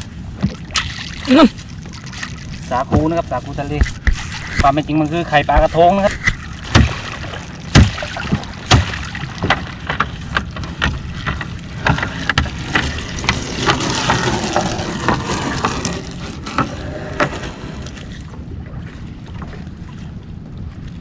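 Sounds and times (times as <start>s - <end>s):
water splashing: 0.0s - 21.0s
net knocking against hull: 2.1s - 4.8s, 5.5s - 16.0s.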